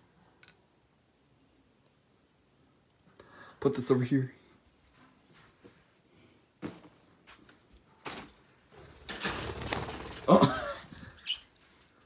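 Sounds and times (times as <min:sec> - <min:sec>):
rustling and scraping: 0:06.6 - 0:11.0.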